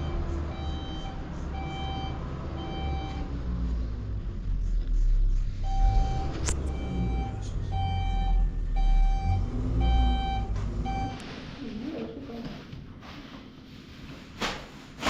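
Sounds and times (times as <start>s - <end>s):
reversing alarm beeping: 0.0s - 3.4s, 5.6s - 11.2s
low engine rumble: 0.0s - 12.6s.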